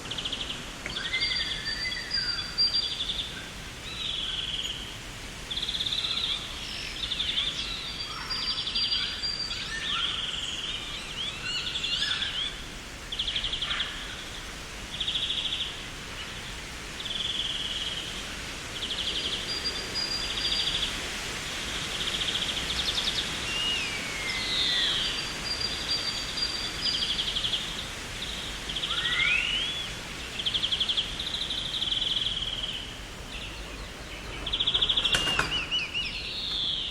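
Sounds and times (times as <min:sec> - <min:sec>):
steady background hiss: 0:00.0 - 0:36.9
birds chirping and whistling: 0:00.3 - 0:03.2, 0:23.0 - 0:36.9.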